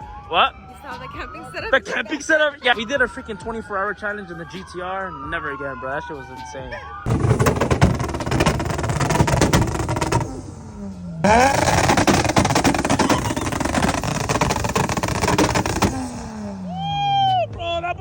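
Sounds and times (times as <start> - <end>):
exhaust pops crackling: 7.1 - 16.8
car engine revving: 7.1 - 17.0.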